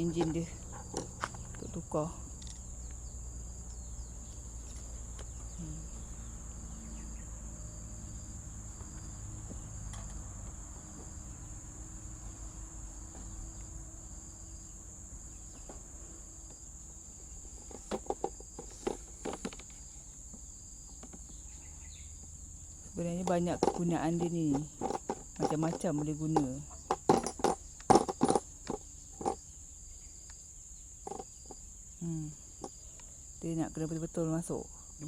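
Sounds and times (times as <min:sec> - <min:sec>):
faint pulsing insect call: 0:00.0 - 0:35.0
high insect chirring: 0:00.0 - 0:35.0
sharp clicks and knocks: 0:17.6 - 0:21.4, 0:23.2 - 0:29.4, 0:31.0 - 0:31.6.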